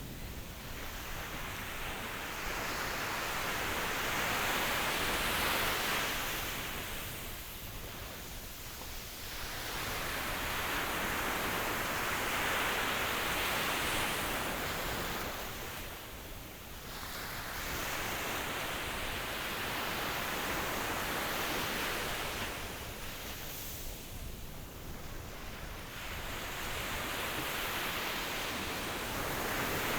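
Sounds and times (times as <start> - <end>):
ocean waves breaking on shore: 16.8 - 29.9.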